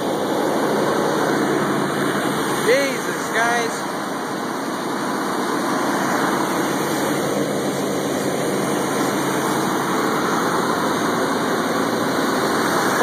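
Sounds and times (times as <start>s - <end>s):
loud engine fan noise: 0.0s - 13.0s.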